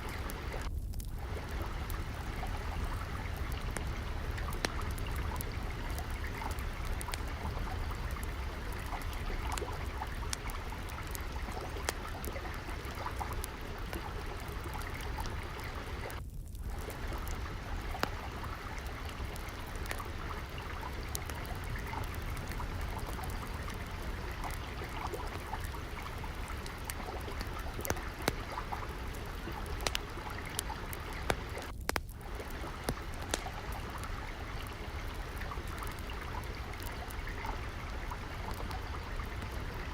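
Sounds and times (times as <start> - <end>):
trickling water: 0.0 - 39.9
wood fire crackling: 0.0 - 39.9
low rumble: 0.4 - 10.4.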